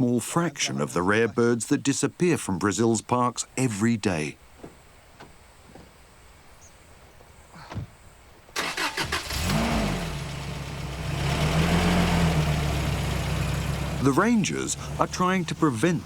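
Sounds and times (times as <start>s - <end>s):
vehicle engine cranking and running: 8.6s - 16.0s.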